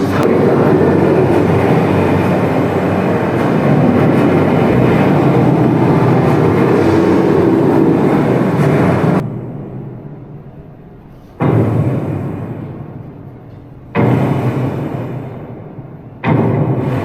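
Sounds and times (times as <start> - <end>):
rushing wind: 0.0 - 10.1.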